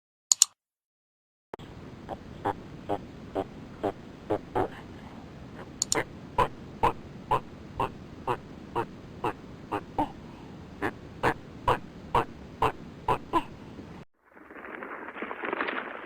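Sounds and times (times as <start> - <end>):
animal giving short calls: 1.6 - 14.0.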